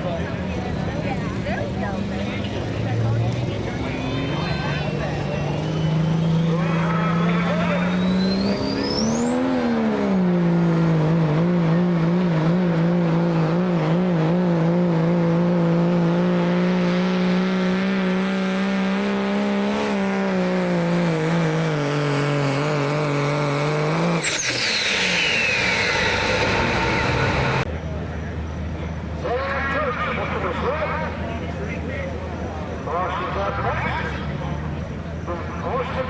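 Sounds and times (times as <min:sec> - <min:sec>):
diesel engine at full throttle: 0:00.0 - 0:36.0
turbocharger whistle: 0:04.1 - 0:12.3, 0:17.6 - 0:27.7.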